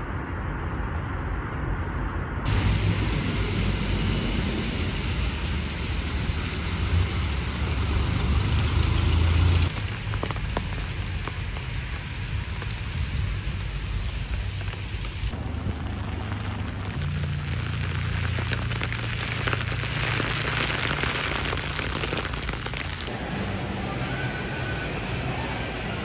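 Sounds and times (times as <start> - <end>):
low rumble: 0.0 - 26.0
steady rain hiss: 2.5 - 23.1.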